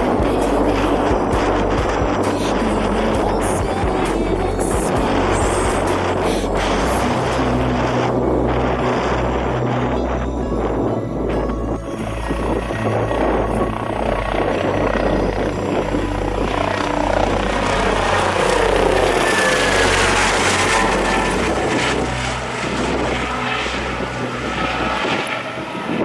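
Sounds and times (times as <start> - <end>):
jet airliner engines roaring: 0.0 - 26.0
trance music with deep bass: 0.0 - 26.0.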